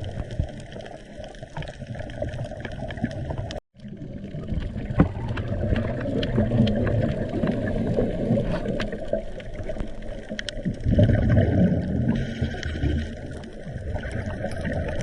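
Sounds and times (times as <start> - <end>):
underwater churning and bubbles: 0.0 - 15.0
faint clicks: 8.7 - 10.8.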